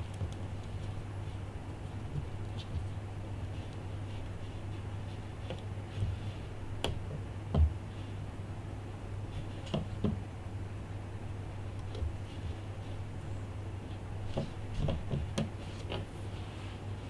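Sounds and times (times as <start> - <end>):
small clicks and taps of handling: 14.3 - 16.0.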